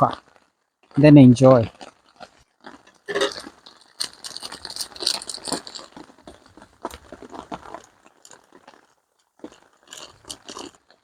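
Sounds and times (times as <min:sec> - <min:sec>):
small hard objects rattling: 0:02.7 - 0:10.8.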